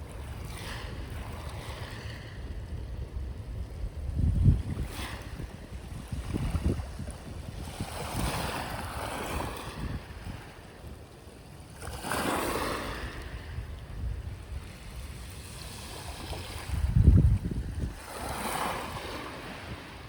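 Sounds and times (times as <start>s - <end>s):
wind buffeting microphone: 0.2s - 11.0s, 12.7s - 20.0s
sea waves washing onto shore: 4.5s - 20.0s.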